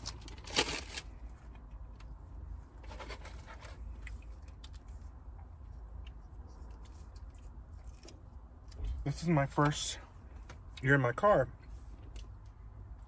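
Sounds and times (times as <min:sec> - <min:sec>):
small clicks and crinkles: 0:00.0 - 0:02.2, 0:02.8 - 0:09.0
low hum inside a car: 0:00.0 - 0:13.0
chewing and crunching: 0:02.9 - 0:09.0.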